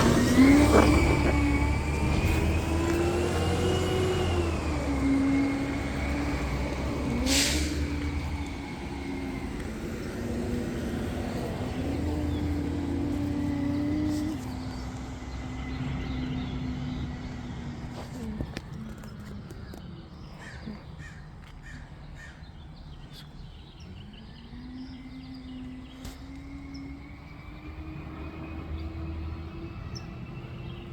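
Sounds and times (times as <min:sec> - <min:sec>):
garbage truck engine revving: 0:00.0 - 0:20.2, 0:24.0 - 0:30.9
air hiss burst: 0:07.2 - 0:08.0.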